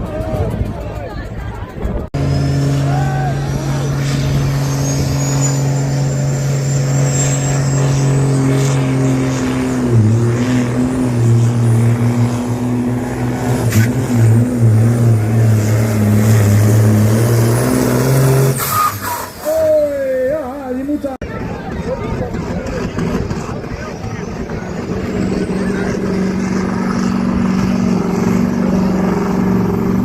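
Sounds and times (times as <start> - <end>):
diesel engine under full load: 0.0 - 30.0
turbo whistle: 18.5 - 19.9.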